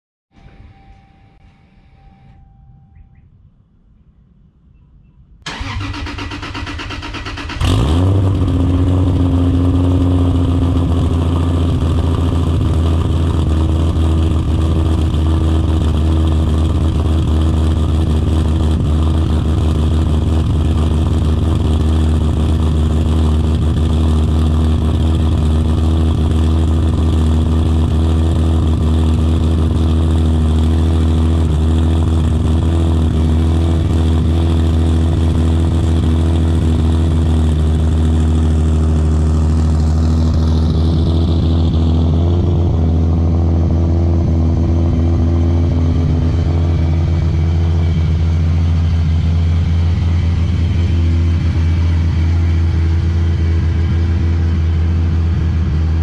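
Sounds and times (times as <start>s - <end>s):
car engine idling: 5.4s - 56.0s
engine starter cranking: 5.5s - 8.2s.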